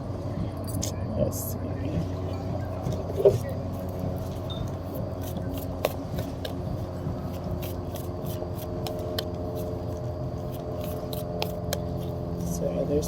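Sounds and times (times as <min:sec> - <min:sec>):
steady low hum: 0:00.0 - 0:13.0
cards being shuffled: 0:02.9 - 0:12.2.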